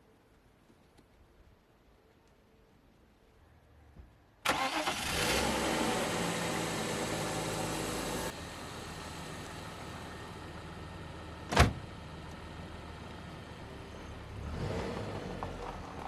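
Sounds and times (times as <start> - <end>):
car engine running: 5.1 - 13.6.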